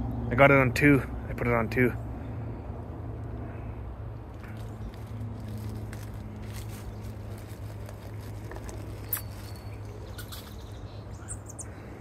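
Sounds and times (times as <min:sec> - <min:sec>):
low outdoor hum: 0:00.0 - 0:12.0
faint high bird chirps: 0:09.0 - 0:11.8.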